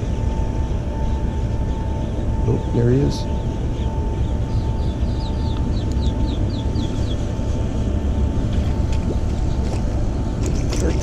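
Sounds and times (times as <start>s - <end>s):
steady low rumble: 0.0s - 11.0s
bird chirping: 0.9s - 7.8s.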